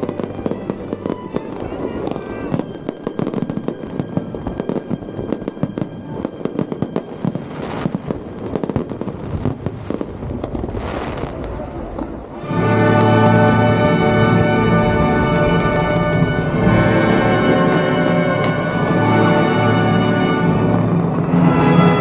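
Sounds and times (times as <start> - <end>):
music with long held chords: 0.0 - 9.2, 12.4 - 22.0
fireworks hissing rushes: 0.0 - 12.0
fireworks crackling and banging: 0.0 - 22.0.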